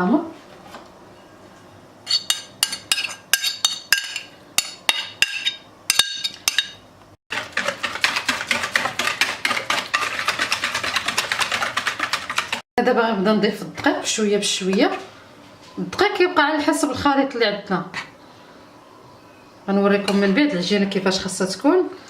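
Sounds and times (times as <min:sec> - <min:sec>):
utensil clinking against bowl: 0:02.1 - 0:06.8
fast mixing strokes in bowl: 0:07.3 - 0:12.7.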